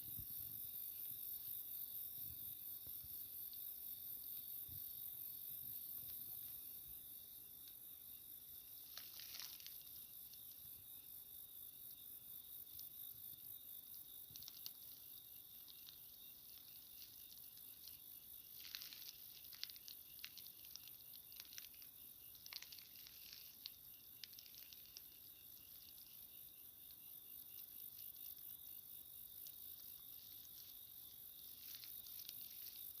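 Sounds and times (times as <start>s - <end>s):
crickets chirring: 0.0s - 33.0s.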